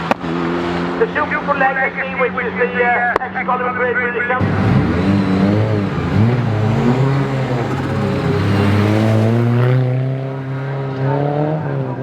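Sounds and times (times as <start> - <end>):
rally car engine accelerating: 4.4 - 12.0.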